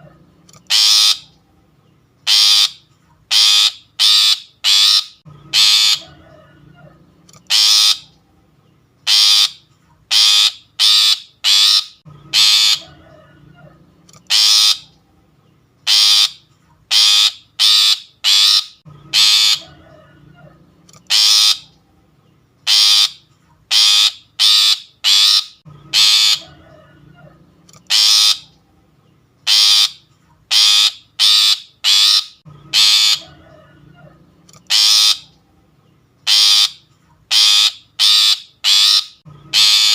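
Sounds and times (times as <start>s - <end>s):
bird giving harsh rasping calls: 0.6s - 1.4s, 2.2s - 6.2s, 7.4s - 8.2s, 9.0s - 13.1s, 14.2s - 15.0s, 15.8s - 20.0s, 21.0s - 21.8s, 22.6s - 26.7s, 27.8s - 28.6s, 29.4s - 33.6s, 34.6s - 35.4s, 36.2s - 39.9s.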